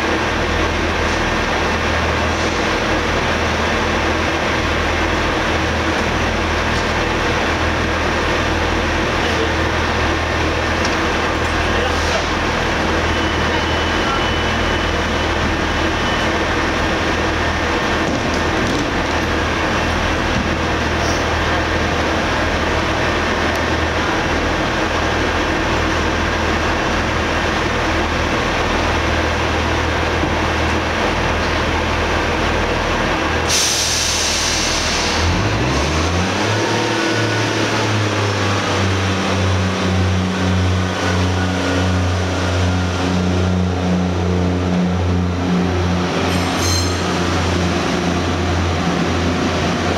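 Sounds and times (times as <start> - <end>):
train engine running: 0.0 - 49.9
air hiss of brake release: 33.5 - 35.3.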